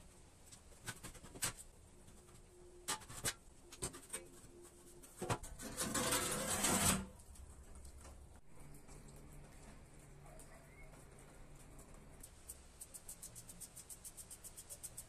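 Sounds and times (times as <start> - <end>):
rough scraping: 2.9 - 7.2.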